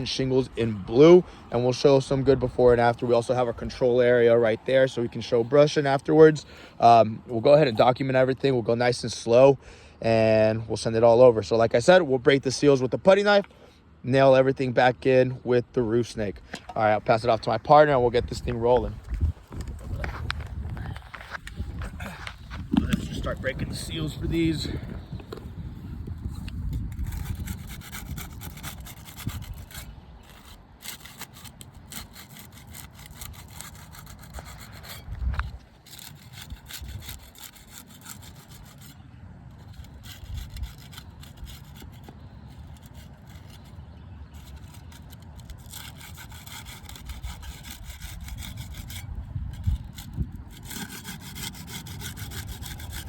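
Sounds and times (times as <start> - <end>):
putty knife scraping shingles: 26.3 - 53.0.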